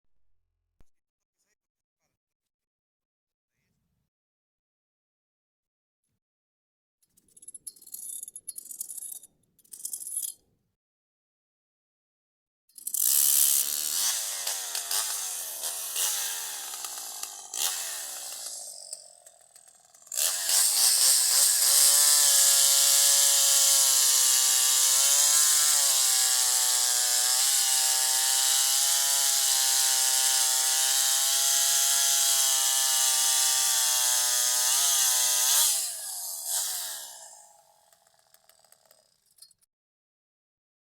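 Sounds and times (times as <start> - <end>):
chainsaw running: 12.8 - 39.4.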